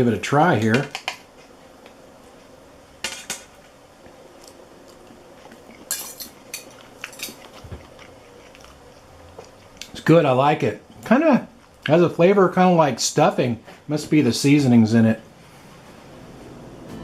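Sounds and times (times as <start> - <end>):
cutlery clinking against a plate: 5.7 - 7.6.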